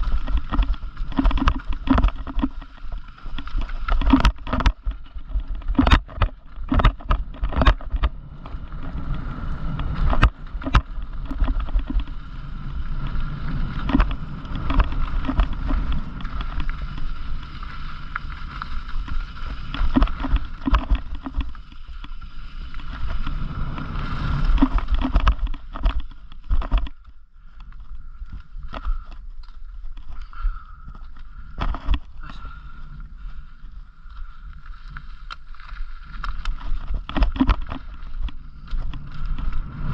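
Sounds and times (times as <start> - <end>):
bike rattling over bumps: 0.0 - 39.9
bike tyre rumble: 0.0 - 39.9
wind on microphone: 3.9 - 21.7.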